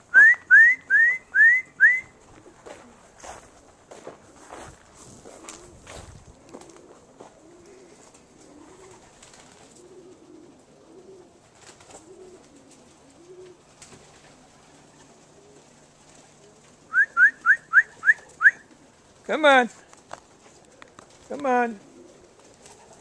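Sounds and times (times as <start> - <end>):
pigeons cooing: 0.8 - 4.6, 5.2 - 19.2, 19.8 - 23.0
faint clicks: 19.9 - 21.5.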